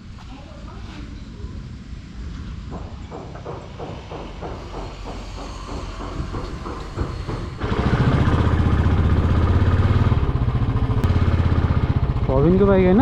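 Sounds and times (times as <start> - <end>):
motorcycle engine running: 7.6 - 13.0.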